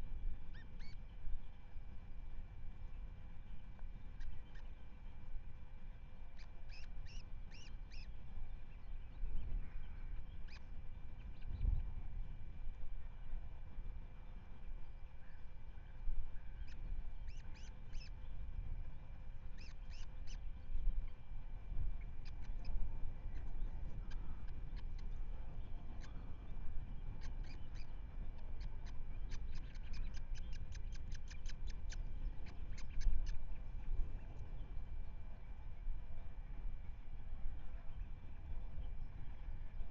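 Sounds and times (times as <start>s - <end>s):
wind on microphone: 0.0s - 39.9s
osprey calling: 0.4s - 1.1s, 4.0s - 4.8s, 6.3s - 8.2s, 10.2s - 11.5s, 16.5s - 18.2s, 19.5s - 20.6s, 21.7s - 34.6s.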